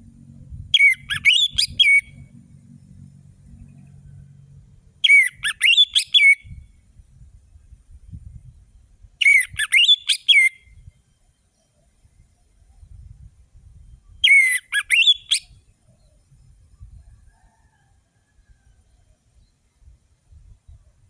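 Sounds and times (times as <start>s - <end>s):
faint low rumble: 0.0s - 5.1s, 6.4s - 9.2s, 11.7s - 14.2s
bird singing whistled notes: 0.7s - 2.2s, 5.0s - 6.8s, 8.1s - 17.1s.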